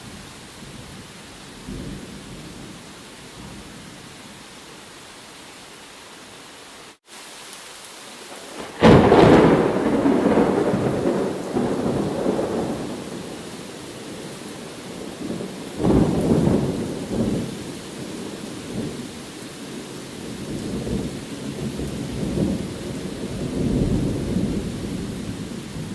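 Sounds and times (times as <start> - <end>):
steady rain: 0.0 - 25.9
thunder rolling: 8.4 - 13.4.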